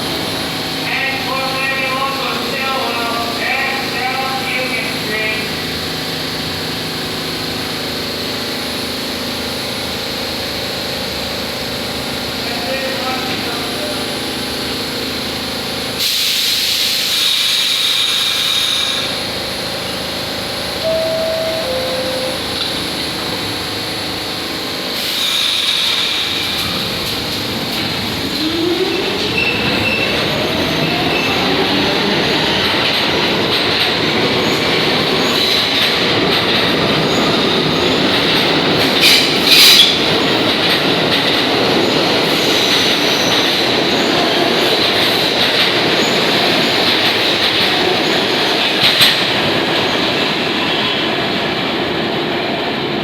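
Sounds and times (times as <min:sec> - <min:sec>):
train motor whine: 0:16.5 - 0:33.2
two-note descending chime: 0:20.8 - 0:22.9
train wheel clatter: 0:24.9 - 0:51.5.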